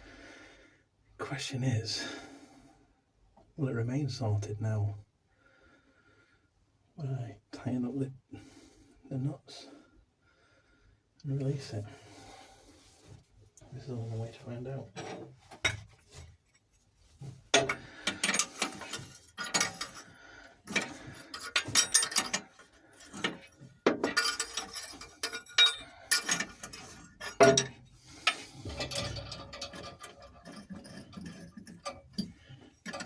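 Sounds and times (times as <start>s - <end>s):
hand tools clinking on metal: 17.5s - 33.0s.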